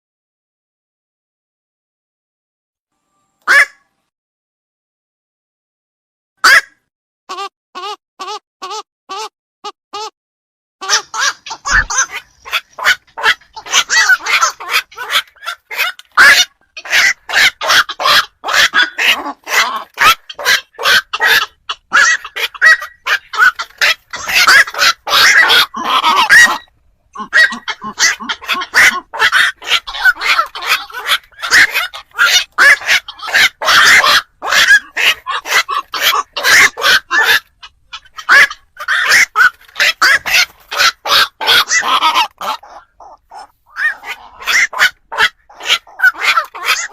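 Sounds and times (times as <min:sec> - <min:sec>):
herons calling: 0:10.8 - 0:46.9.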